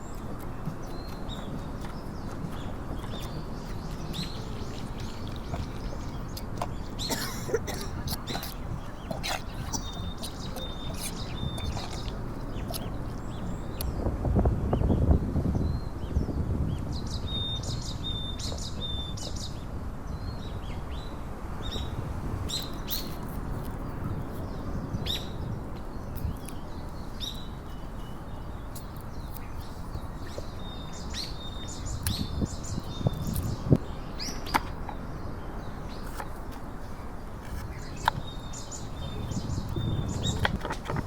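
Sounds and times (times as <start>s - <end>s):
small birds chirping: 0.0s - 14.1s, 14.7s - 41.0s.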